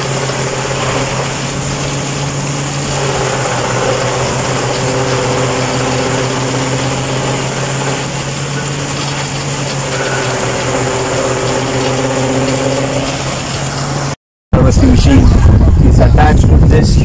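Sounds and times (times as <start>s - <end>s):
forage harvester whirring: 0.0s - 14.9s
tractor engine running: 0.0s - 15.7s.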